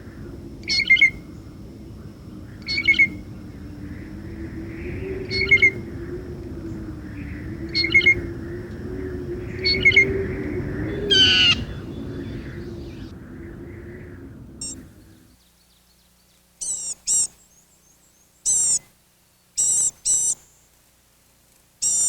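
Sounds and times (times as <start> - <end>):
low hum: 0.0 - 16.9
harsh bird call: 9.5 - 13.1
bird double call: 10.9 - 12.0.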